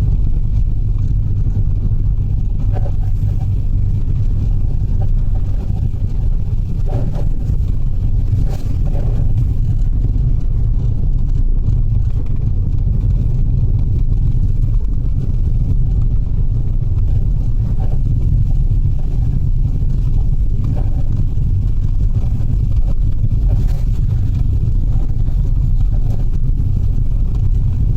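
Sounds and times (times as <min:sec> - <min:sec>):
van engine and road noise: 0:00.0 - 0:27.9.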